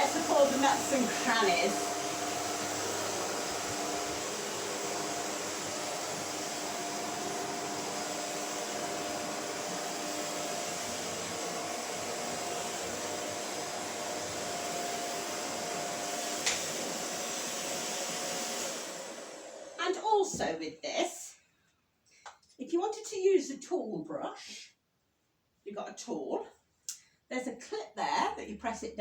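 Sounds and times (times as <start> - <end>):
vacuum cleaner running: 0.0 - 20.6.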